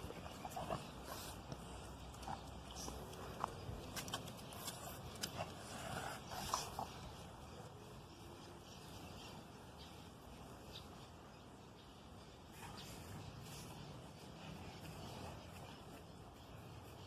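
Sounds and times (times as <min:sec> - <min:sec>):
dog paws clicking and tapping: 0:00.0 - 0:06.7.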